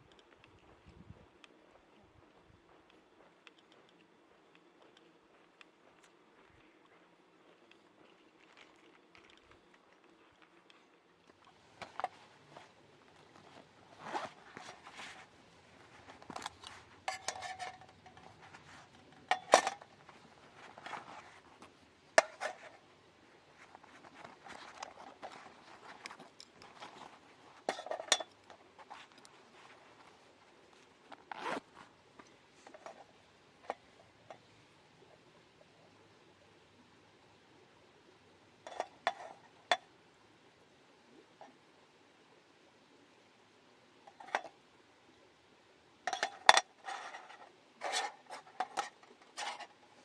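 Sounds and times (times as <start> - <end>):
camping gear clicking and clinking: 0.0 - 34.5, 38.6 - 39.9, 44.1 - 44.6, 46.1 - 50.0
rustling: 4.6 - 34.5, 46.1 - 50.0.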